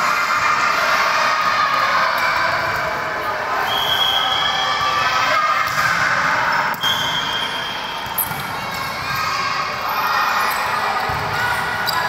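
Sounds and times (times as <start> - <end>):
basketball bouncing: 8.2 - 8.5, 11.1 - 11.3.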